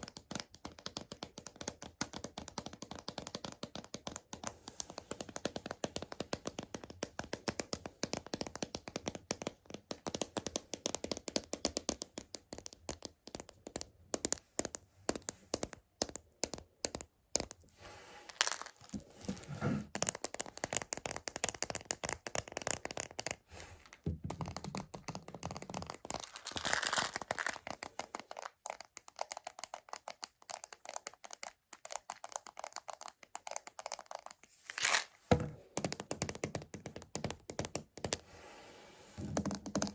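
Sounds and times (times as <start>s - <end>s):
rapid tapping on plastic container: 5.2s - 17.5s, 19.9s - 34.3s, 35.3s - 38.2s, 39.2s - 39.9s
crinkling and rustling: 17.7s - 20.8s, 25.9s - 29.3s, 33.9s - 35.5s.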